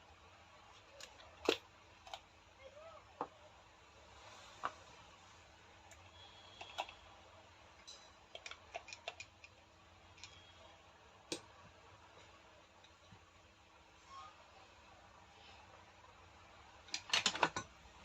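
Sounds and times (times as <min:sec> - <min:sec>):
faint steady hum: 0:00.0 - 0:18.0
small parts clicking and tapping: 0:00.6 - 0:02.3, 0:05.9 - 0:07.1, 0:07.7 - 0:11.7, 0:16.8 - 0:17.8.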